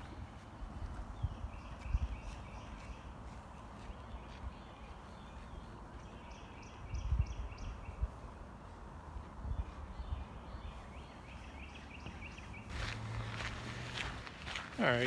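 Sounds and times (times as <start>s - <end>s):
wind rumble on microphone: 0.0s - 3.0s, 6.6s - 11.0s
songbird chirping: 0.0s - 15.0s
footsteps crunching on gravel: 11.9s - 15.0s.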